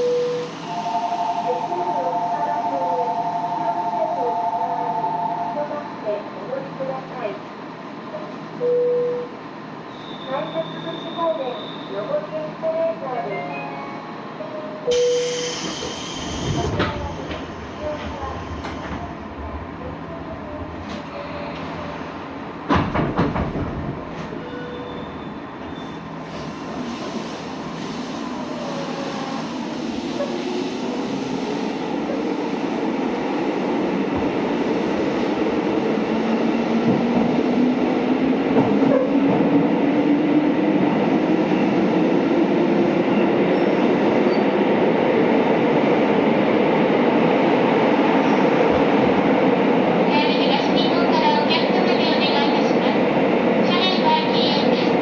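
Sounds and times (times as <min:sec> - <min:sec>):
knock: 0:22.7 - 0:23.8.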